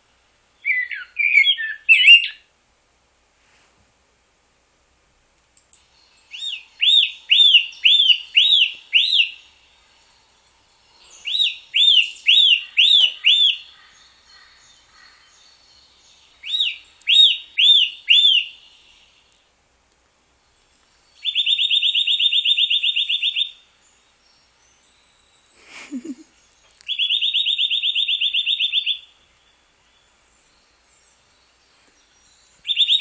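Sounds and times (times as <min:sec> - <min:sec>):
songbird whistling: 0:00.6 - 0:02.4, 0:06.3 - 0:09.6, 0:11.0 - 0:19.1, 0:21.2 - 0:23.6, 0:32.2 - 0:33.0.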